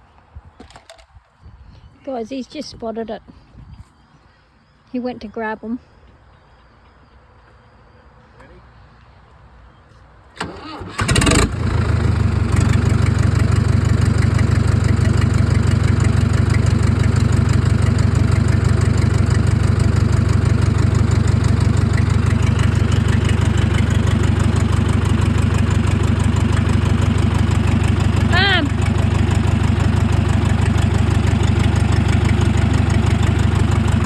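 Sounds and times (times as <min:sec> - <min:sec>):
tractor diesel engine idling: 0:10.4 - 0:34.0.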